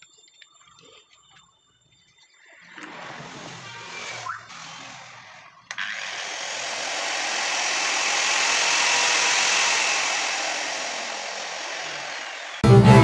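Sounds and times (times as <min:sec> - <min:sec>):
angle grinder motor whirring: 0:02.7 - 0:12.6.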